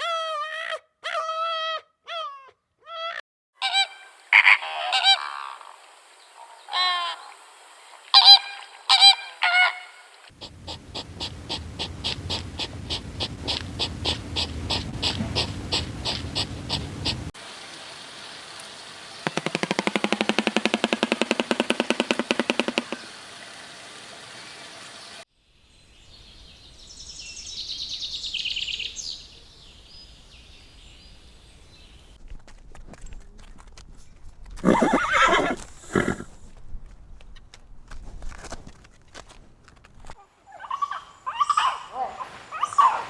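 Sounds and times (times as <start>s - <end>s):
high-pitched animal call: 0.0s - 5.8s, 6.4s - 7.4s, 8.2s - 17.3s, 34.6s - 36.3s
rapidly pulsed animal call: 3.6s - 17.3s, 34.6s - 36.3s
short loud animal call: 34.6s - 36.4s.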